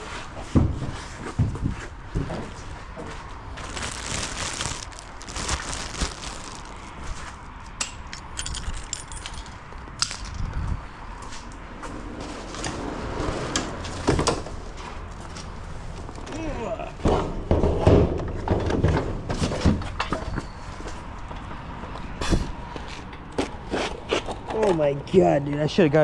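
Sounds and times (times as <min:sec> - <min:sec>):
small metallic clinks: 0:07.8 - 0:10.4.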